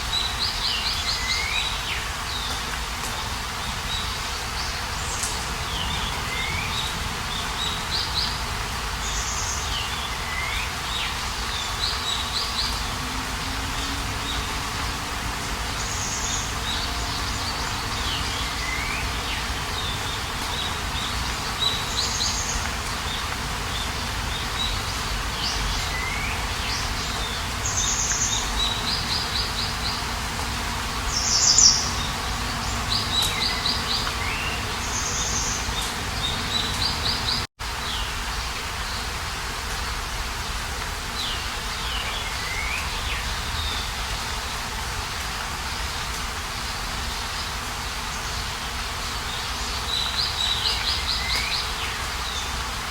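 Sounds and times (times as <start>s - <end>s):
outdoor background hiss: 0.0s - 52.9s
birds chirping and trilling: 3.6s - 39.1s.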